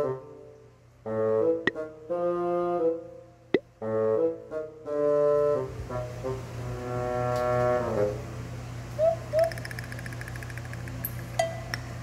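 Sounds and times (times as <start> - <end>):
playful background music: 1.4 - 3.0.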